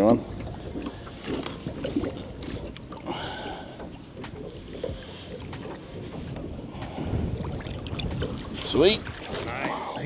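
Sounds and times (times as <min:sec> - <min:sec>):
wind buffeting the microphone: 0:03.8 - 0:10.0.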